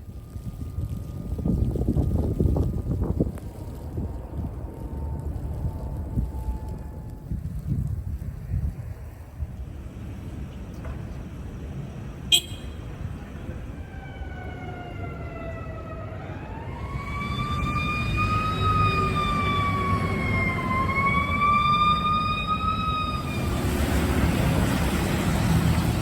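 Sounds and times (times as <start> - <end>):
traffic rumble: 0.0 - 26.0
wind: 0.0 - 26.0
siren wailing: 13.8 - 23.5.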